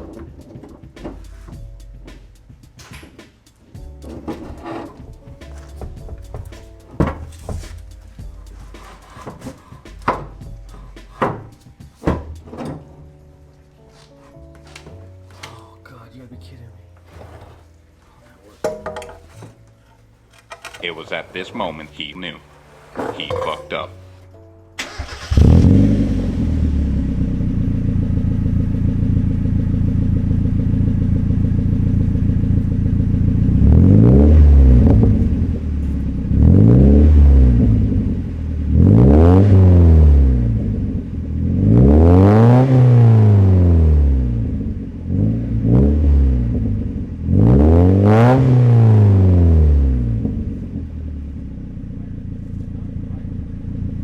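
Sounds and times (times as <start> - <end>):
car engine idling and revving: 0.0 - 2.6, 3.8 - 11.4, 24.8 - 54.0.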